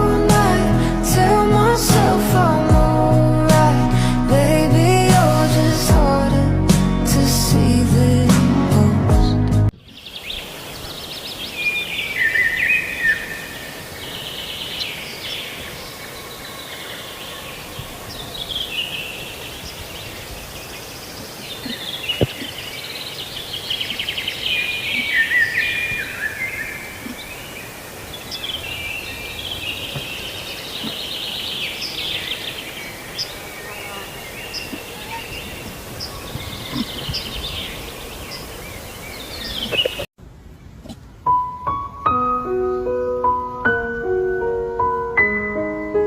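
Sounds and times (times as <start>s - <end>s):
music: 0.0s - 9.7s, 41.3s - 46.0s
birds chirping and trilling: 9.8s - 41.2s.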